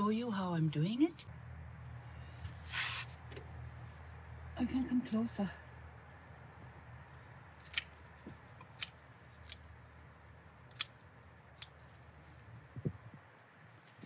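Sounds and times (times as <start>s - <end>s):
pruning shears snipping stems: 7.5s - 12.1s.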